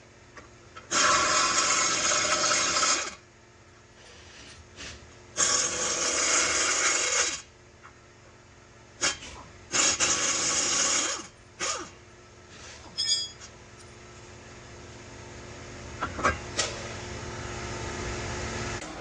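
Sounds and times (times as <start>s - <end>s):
pneumatic tool running: 0.9s - 3.2s, 5.4s - 7.5s, 9.0s - 12.0s.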